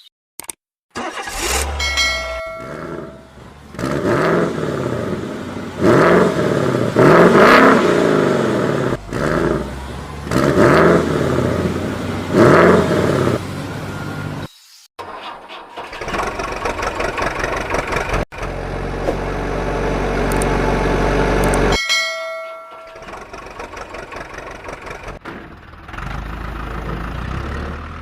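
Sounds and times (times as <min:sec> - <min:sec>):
engine revving up and down: 0:01.0 - 0:14.5, 0:15.8 - 0:21.8, 0:23.0 - 0:28.0
short ringing chime: 0:01.7 - 0:03.4, 0:21.7 - 0:23.2.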